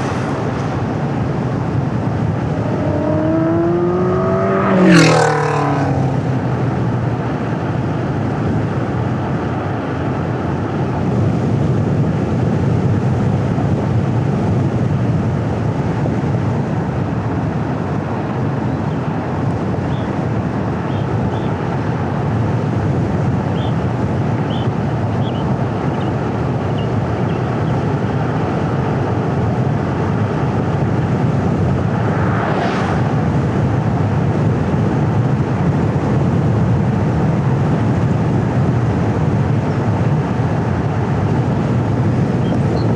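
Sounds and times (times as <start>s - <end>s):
brief whoosh: 0.0s - 0.9s, 31.9s - 33.4s
car engine and tyre rumble: 0.0s - 42.9s
wind on microphone: 0.0s - 42.9s.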